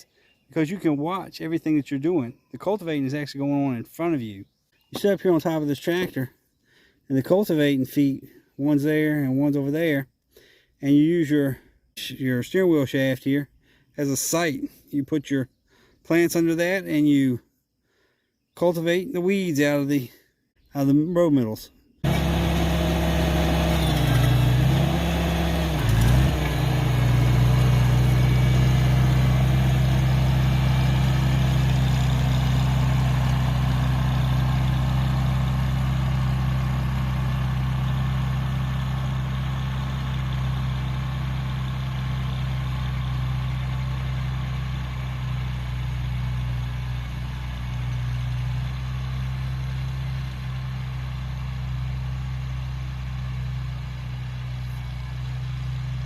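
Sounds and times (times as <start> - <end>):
garden tractor engine running: 22.0 - 56.0.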